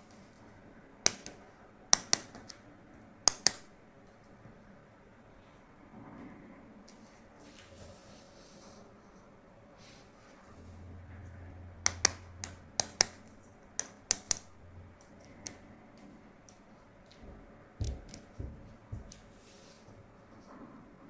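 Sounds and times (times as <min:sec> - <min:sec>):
dull knocks: 0:17.2 - 0:19.2.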